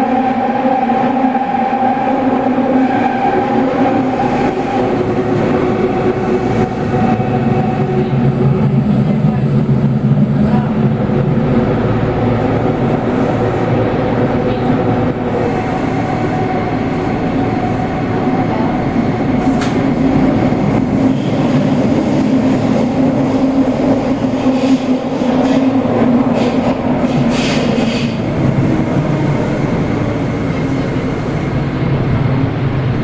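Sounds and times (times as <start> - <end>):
subway train rumbling: 0.0 - 33.0.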